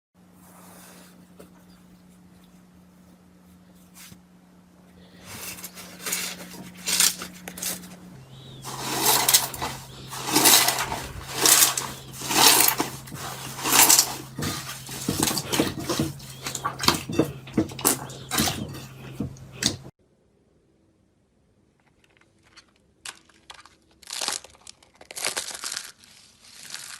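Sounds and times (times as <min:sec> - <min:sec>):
slime squelching by hand: 0:08.4 - 0:19.9, 0:21.8 - 0:26.9.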